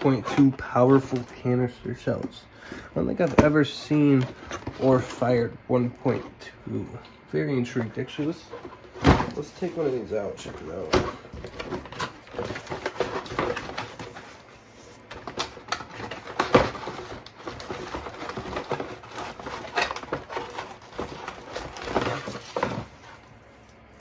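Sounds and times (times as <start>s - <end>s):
packaging rustling: 0.0s - 2.3s, 7.7s - 24.0s.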